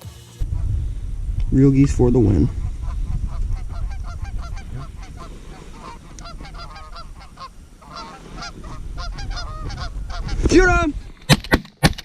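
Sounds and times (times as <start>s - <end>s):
geese honking: 2.4s - 10.5s.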